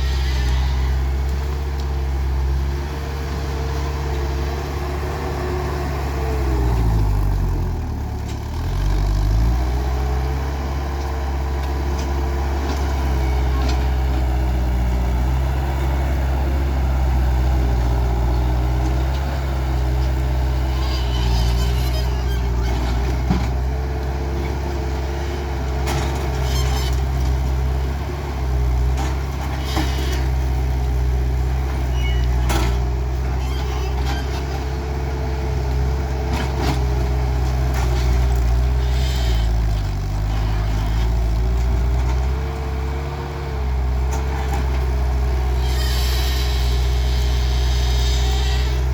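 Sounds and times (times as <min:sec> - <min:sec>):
loader engine running: 0:00.0 - 0:48.9.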